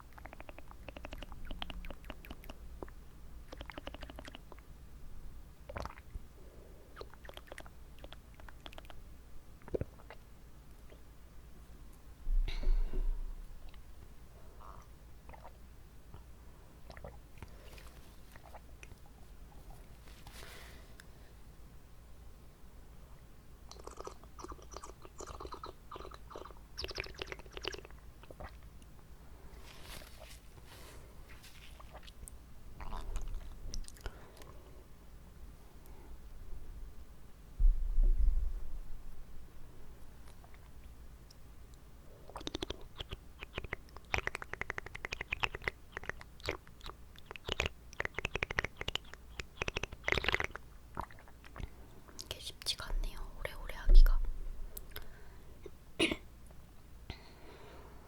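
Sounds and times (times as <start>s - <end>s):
wet mouth clicks and smacks: 0.1s - 4.7s, 7.0s - 9.0s, 18.3s - 19.1s, 23.7s - 28.9s, 31.8s - 34.5s, 42.2s - 52.3s, 54.8s - 55.1s.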